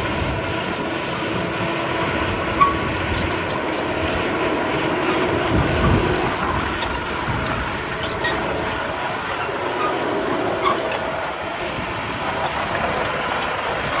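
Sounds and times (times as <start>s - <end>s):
diesel engine running: 0.0s - 14.0s
metallic clanks and rattling: 1.9s - 11.4s.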